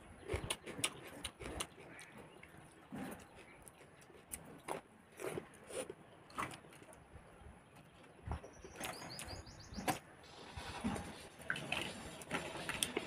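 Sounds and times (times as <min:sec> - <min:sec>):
person chewing food: 0:00.2 - 0:07.0
bird chirping: 0:07.6 - 0:10.0.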